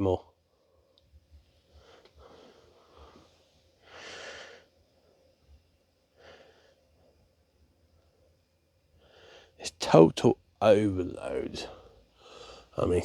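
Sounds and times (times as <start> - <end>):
person breathing: 1.7 - 4.7, 6.1 - 6.9, 9.0 - 9.6, 11.6 - 12.8.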